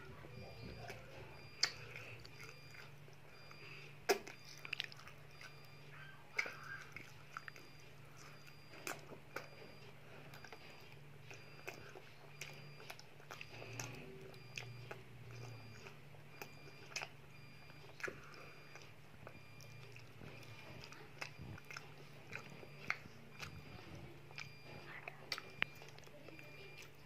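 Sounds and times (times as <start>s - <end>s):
child chewing food: 0.0s - 27.0s
low steady hum: 0.0s - 27.0s
wet mouth clicks and smacks: 1.6s - 3.0s, 4.0s - 5.6s, 11.3s - 26.2s.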